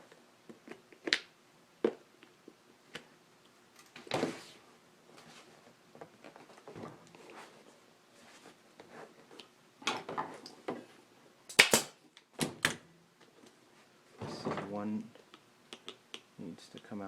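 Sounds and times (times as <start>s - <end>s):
sharp snaps: 11.5s - 12.0s, 15.2s - 16.9s.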